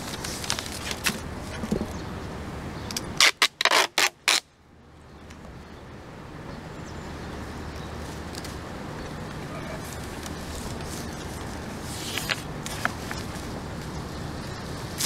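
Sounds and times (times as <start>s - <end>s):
tape ripping off a roll: 0.0s - 1.7s, 3.0s - 4.5s, 9.8s - 13.5s.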